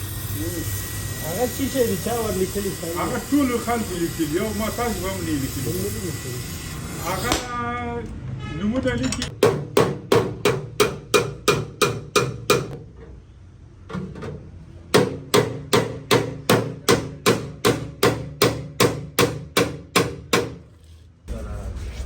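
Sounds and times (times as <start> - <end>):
hammer striking sheet metal: 9.3 - 12.8, 15.0 - 20.6.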